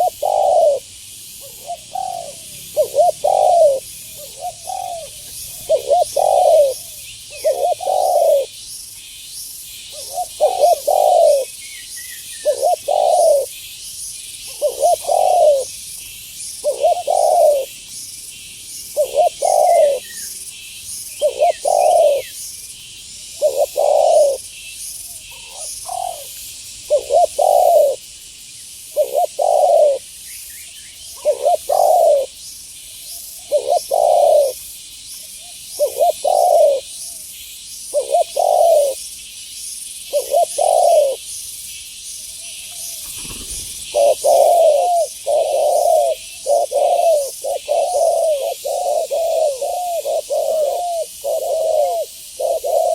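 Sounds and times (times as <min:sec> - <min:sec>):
dove cooing: 0:00.0 - 0:08.6, 0:09.9 - 0:11.6, 0:12.4 - 0:13.5, 0:14.5 - 0:15.8, 0:16.6 - 0:17.8, 0:18.9 - 0:20.3, 0:21.2 - 0:22.4, 0:23.4 - 0:24.4, 0:25.1 - 0:28.0, 0:28.9 - 0:30.1, 0:31.1 - 0:32.4, 0:33.4 - 0:34.6, 0:35.4 - 0:37.2, 0:37.9 - 0:39.0, 0:40.1 - 0:41.2, 0:42.7 - 0:52.9
steady high hiss: 0:00.0 - 0:52.9
faint bird chirps: 0:28.6 - 0:52.9.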